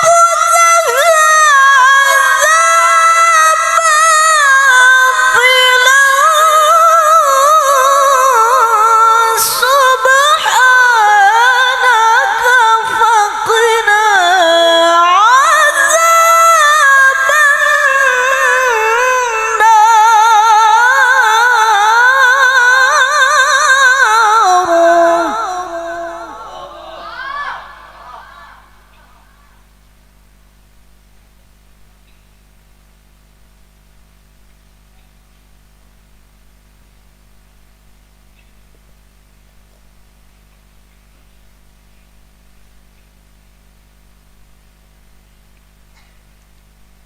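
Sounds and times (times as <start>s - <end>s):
woman reciting melodically: 0.0s - 29.8s
low electrical hum and hiss: 0.0s - 47.0s.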